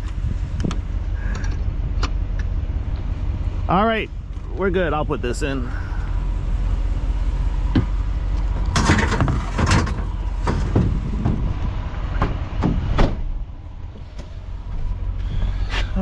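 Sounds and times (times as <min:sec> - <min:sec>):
vehicle engine low drone: 0:00.0 - 0:16.0
sharp knocks and clunks: 0:07.7 - 0:13.3.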